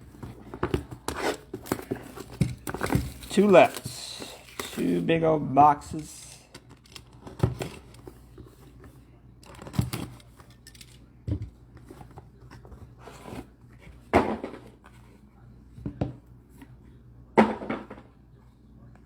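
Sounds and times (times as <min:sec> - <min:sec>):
packaging rustling and tearing: 0:01.0 - 0:05.0.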